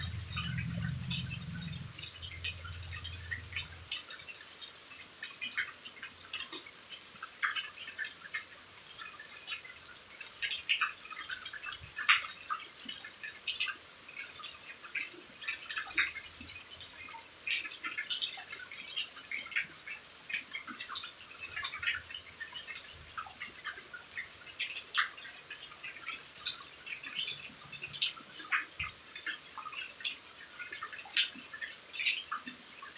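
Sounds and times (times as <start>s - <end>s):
rain hissing: 0.0s - 3.9s
rain drips ticking: 0.0s - 32.9s.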